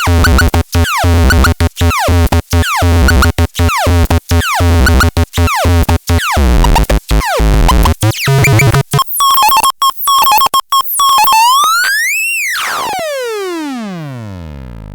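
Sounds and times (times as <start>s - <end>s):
electronic synthesizer music: 0.0s - 9.5s.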